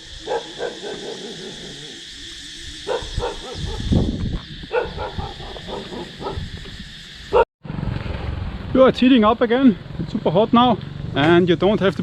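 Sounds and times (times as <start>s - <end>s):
dogs barking: 0.2s - 2.0s, 2.8s - 3.9s, 4.7s - 6.4s.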